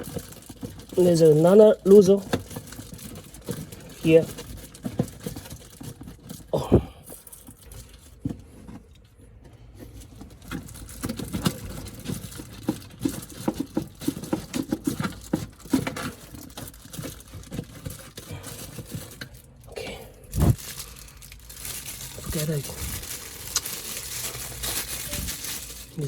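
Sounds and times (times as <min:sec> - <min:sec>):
hands handling plastic packaging: 0:00.0 - 0:19.7, 0:20.3 - 0:26.0.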